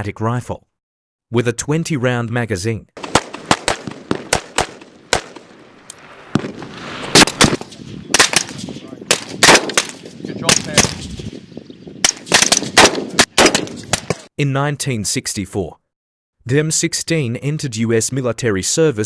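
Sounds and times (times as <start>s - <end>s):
rifle single shots: 3.0s - 11.3s, 12.0s - 14.3s.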